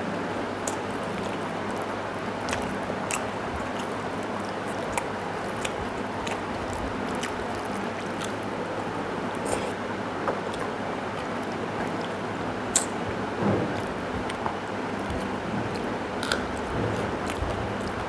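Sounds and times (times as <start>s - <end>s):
chewing and swallowing: 0.4s - 18.0s.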